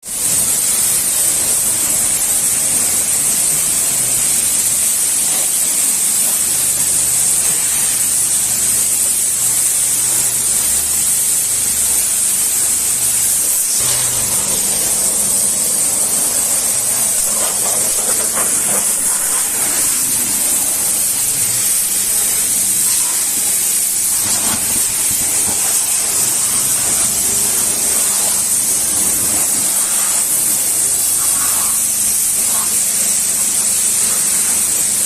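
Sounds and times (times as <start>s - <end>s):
high-pressure water spray hissing: 0.0s - 35.0s
low machine hum: 9.5s - 32.6s.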